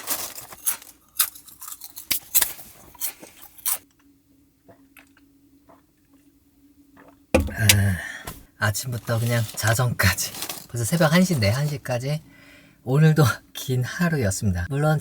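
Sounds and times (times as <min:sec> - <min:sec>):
crunchy chips being chewed: 0:00.0 - 0:04.0
person speaking: 0:07.4 - 0:08.1.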